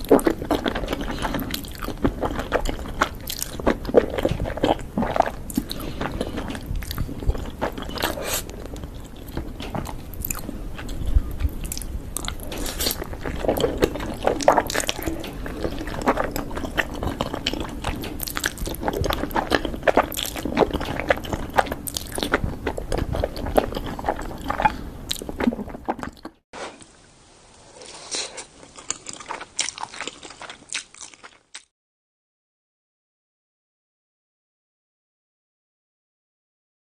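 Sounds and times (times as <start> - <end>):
wet mouth sounds: 0.0 - 26.9
person chewing crunchy food: 0.0 - 27.0, 27.8 - 31.7.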